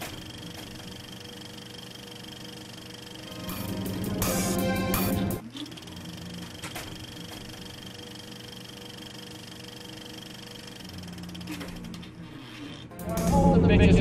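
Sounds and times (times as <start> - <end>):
mechanical hum: 0.0 - 14.0
music: 3.2 - 5.4, 12.9 - 14.0.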